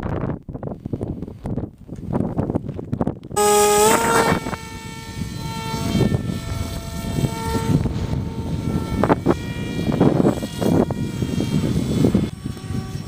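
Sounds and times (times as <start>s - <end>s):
wind buffeting microphone: 0.0s - 13.0s
model plane motor whining: 3.4s - 13.0s.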